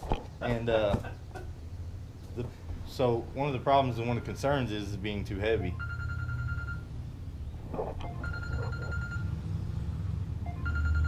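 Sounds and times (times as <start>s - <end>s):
phone ringing: 5.6s - 6.9s, 8.0s - 9.4s, 10.4s - 11.0s.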